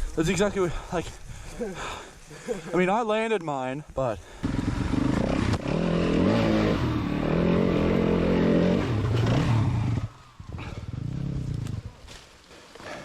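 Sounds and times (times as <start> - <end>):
dirt bike engine revving: 4.4 - 12.0.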